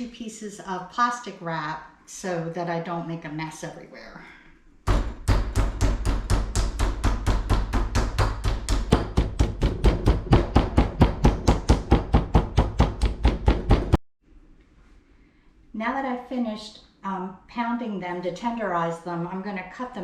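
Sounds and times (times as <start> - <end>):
meat mallet pounding chicken: 4.9 - 14.0.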